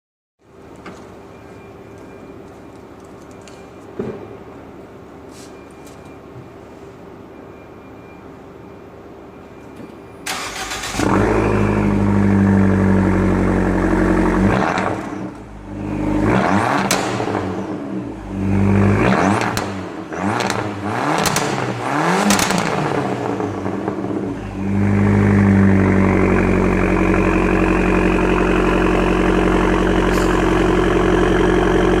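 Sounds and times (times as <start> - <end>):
car engine starting and revving: 10.3 - 32.0.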